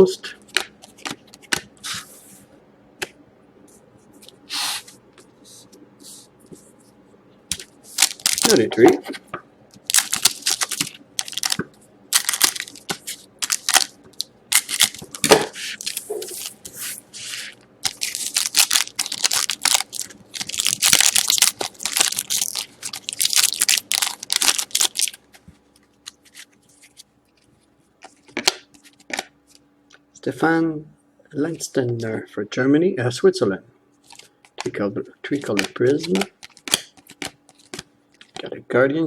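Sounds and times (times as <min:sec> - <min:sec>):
card pack wrappers tearing and crumpling: 0:07.5 - 0:08.7, 0:09.8 - 0:16.8, 0:17.8 - 0:25.2, 0:35.4 - 0:37.8.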